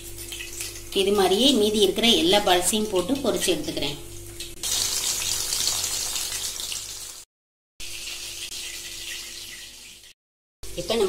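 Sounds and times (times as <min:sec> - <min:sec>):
hot oil sizzling: 0:04.2 - 0:10.2.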